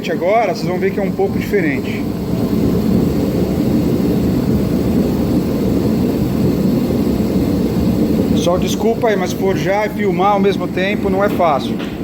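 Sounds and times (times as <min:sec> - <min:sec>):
forge equipment roaring: 0:00.0 - 0:12.0.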